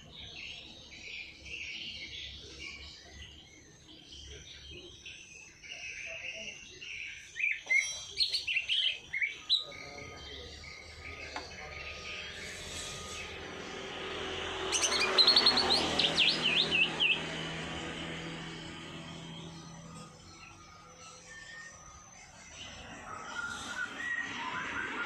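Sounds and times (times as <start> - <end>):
songbirds chirping: 0.0 - 25.0
loud sharp bird calls: 4.9 - 21.5.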